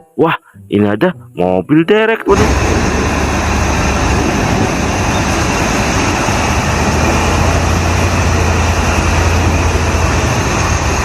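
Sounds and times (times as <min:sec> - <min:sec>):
truck engine running: 0:02.3 - 0:11.0.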